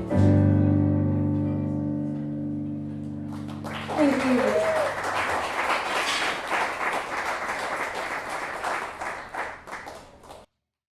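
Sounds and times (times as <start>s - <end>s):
audience applauding: 3.3s - 10.5s.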